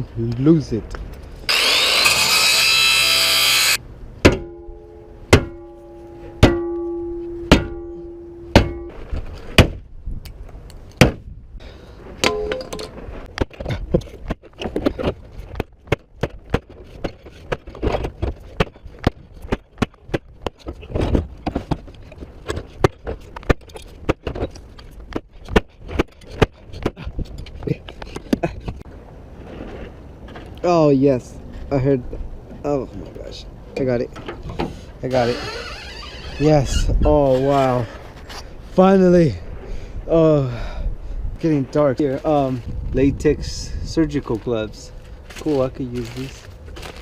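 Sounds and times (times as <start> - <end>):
power tool burst: 1.5 - 3.8
ringing metallic strikes: 4.2 - 9.0, 12.2 - 12.8.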